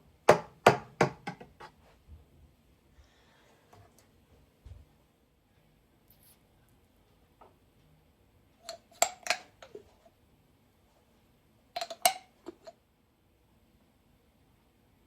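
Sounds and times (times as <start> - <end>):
dishes and cutlery clinking: 11.8 - 12.7.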